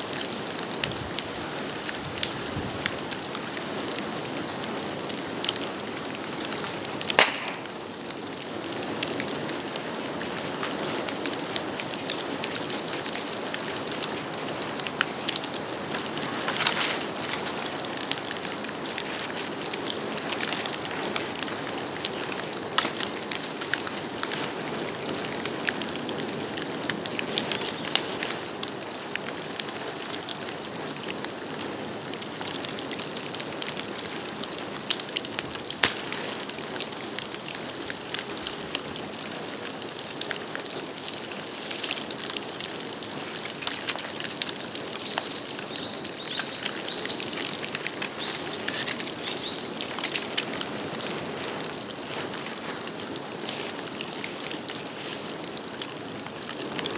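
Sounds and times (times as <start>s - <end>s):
bonfire crackling and popping: 0.0s - 56.9s
thin high whistle: 9.2s - 20.9s, 30.4s - 38.9s, 46.3s - 55.6s.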